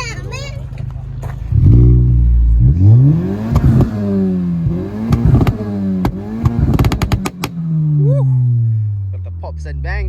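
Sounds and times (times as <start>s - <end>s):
car engine revving: 0.0s - 10.0s
exhaust pops and bangs: 3.4s - 7.6s.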